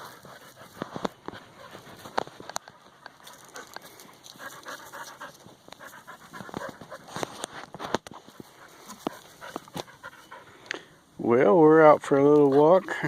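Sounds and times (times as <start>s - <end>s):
dog panting: 0.0s - 7.5s, 8.3s - 10.6s.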